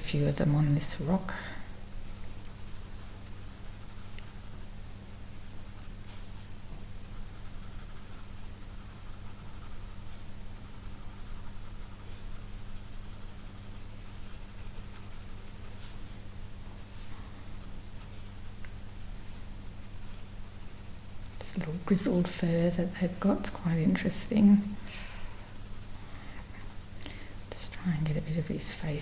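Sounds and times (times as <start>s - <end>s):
low electrical hum: 0.0s - 29.0s
pencil scratching on paper: 2.2s - 4.6s, 7.0s - 15.9s, 19.6s - 22.3s, 24.0s - 26.1s.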